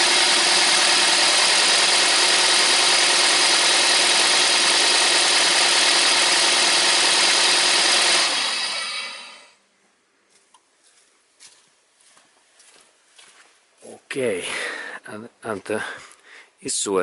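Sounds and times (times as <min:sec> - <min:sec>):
car engine idling rough: 0:00.0 - 0:09.2.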